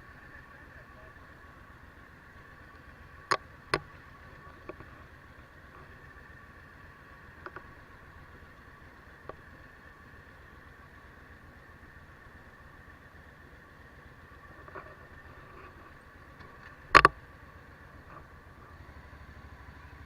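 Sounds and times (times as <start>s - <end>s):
motorcycle engine hum: 0.0s - 20.0s
faint ticks: 2.6s - 6.4s, 7.1s - 7.9s, 8.7s - 9.8s
sharp clicks: 16.4s - 17.2s.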